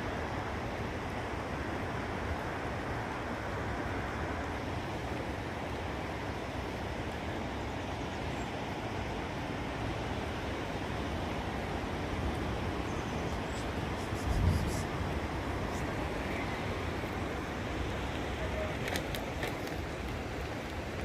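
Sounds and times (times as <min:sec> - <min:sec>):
snowstorm wind rushing: 0:08.8 - 0:21.0
gusts rumbling on microphone: 0:11.6 - 0:21.0.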